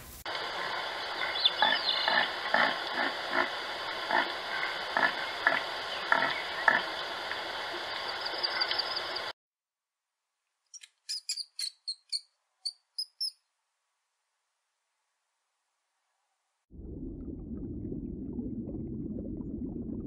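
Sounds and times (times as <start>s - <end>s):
steady hiss: 0.0s - 9.3s.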